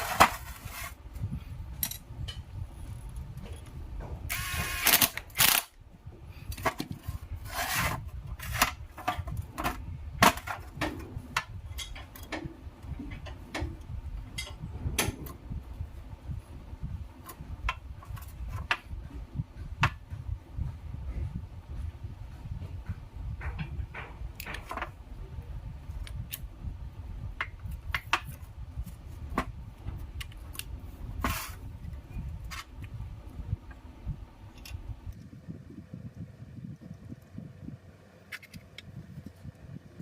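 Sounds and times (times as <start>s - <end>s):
tools clicking and clinking: 1.8s - 2.4s.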